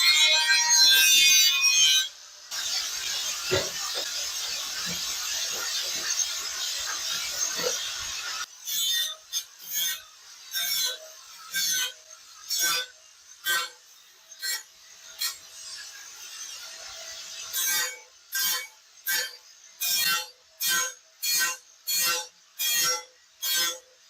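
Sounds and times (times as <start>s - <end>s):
hand tool scraping: 2.5s - 8.5s.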